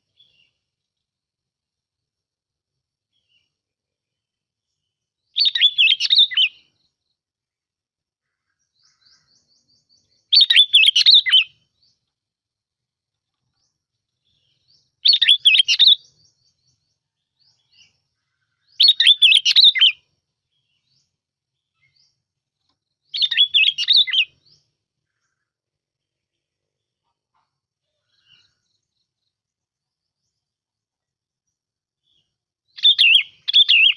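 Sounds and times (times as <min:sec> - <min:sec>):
bulbul song: 0:05.3 - 0:07.0, 0:08.8 - 0:12.0, 0:23.0 - 0:24.8, 0:32.1 - 0:33.9.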